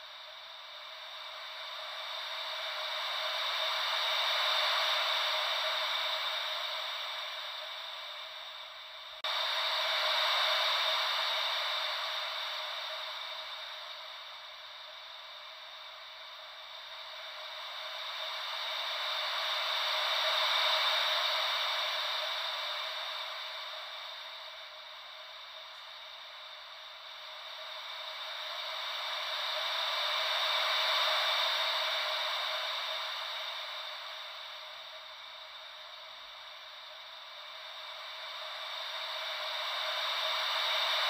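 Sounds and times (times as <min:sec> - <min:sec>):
hissy ocean wave noise: 0:00.2 - 0:41.0.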